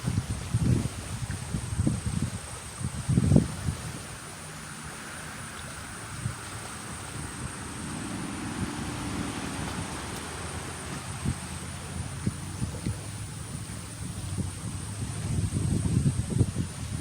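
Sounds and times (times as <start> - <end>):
low engine hum: 0.0 - 17.0
wind buffeting microphone: 0.0 - 17.0.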